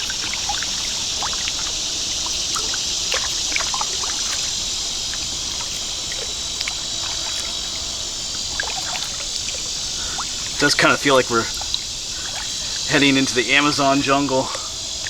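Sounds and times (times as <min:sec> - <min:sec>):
high-pitched insect chorus: 0:00.0 - 0:15.0
kayak paddle splashing: 0:00.0 - 0:15.0
water dripping off paddle: 0:00.0 - 0:15.0.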